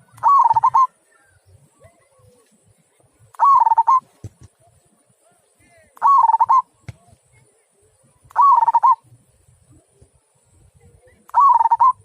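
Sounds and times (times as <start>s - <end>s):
dove cooing: 0.0s - 1.4s, 3.4s - 4.1s, 6.0s - 6.7s, 8.4s - 9.1s, 11.3s - 12.0s.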